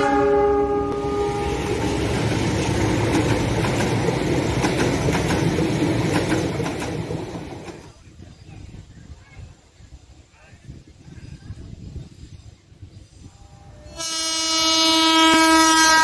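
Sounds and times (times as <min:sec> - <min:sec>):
locomotive horn: 0:00.0 - 0:01.9, 0:13.8 - 0:16.0
train coaches passing: 0:00.0 - 0:09.1, 0:11.2 - 0:16.0
wheels clacking over rail joints: 0:01.0 - 0:08.0.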